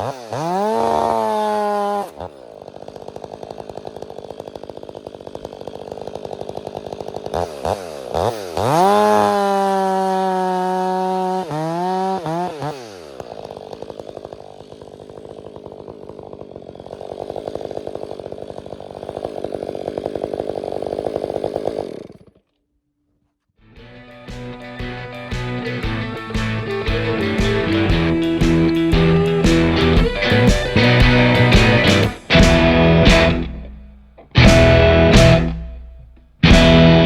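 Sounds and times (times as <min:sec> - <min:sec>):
chainsaw idling and revving: 0:00.0 - 0:22.6, 0:24.1 - 0:37.0.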